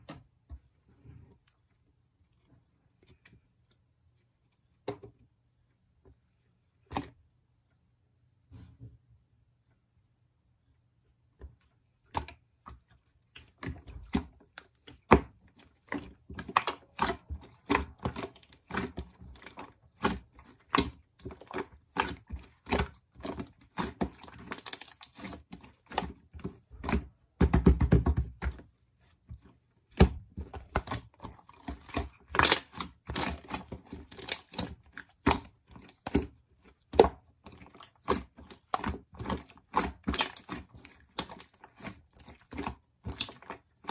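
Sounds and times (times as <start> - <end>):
crinkling and rustling: 28.2 - 43.9.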